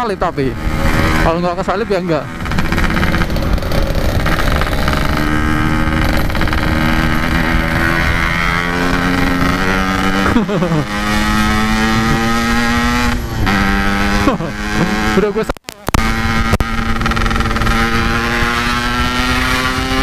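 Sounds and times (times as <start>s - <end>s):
wind rushing over microphone: 0.0s - 15.2s
motorcycle engine revving: 0.0s - 20.0s.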